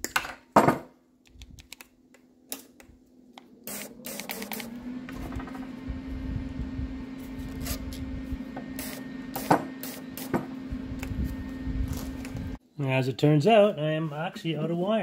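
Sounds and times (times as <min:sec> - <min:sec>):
welder wire-feed motor humming: 0:03.3 - 0:12.6.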